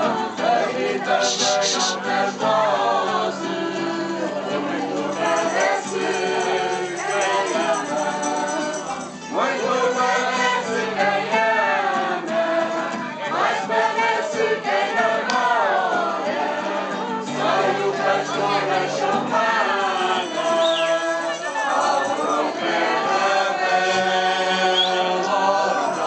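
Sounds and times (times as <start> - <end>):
voices singing together: 0.0 - 26.0.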